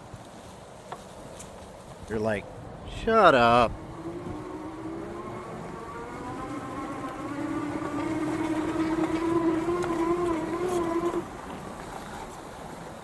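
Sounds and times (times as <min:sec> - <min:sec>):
low rumble of travel noise: 0:00.0 - 0:13.0
motor whine: 0:03.1 - 0:12.9.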